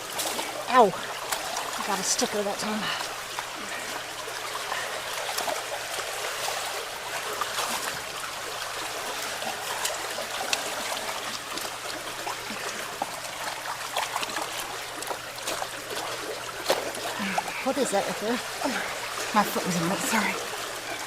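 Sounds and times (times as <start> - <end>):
small clicks and splashes: 0.0 - 21.0
water trickling through culvert: 0.0 - 21.0.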